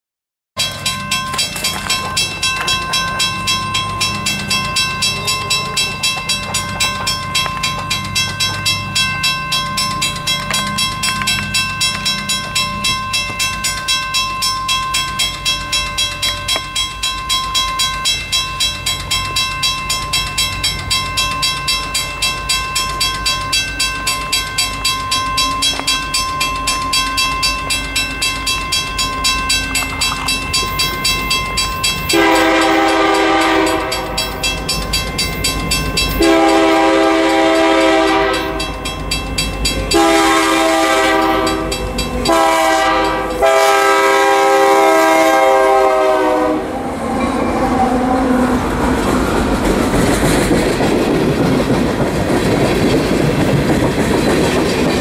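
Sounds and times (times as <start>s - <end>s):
diesel locomotive engine rumbling: 0.6s - 55.0s
locomotive bell ringing: 0.6s - 55.0s.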